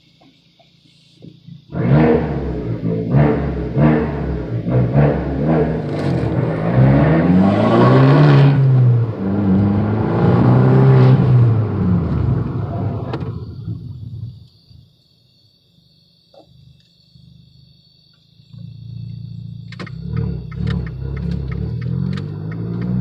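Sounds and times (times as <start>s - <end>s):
car engine accelerating hard: 1.6s - 14.4s, 18.6s - 23.0s.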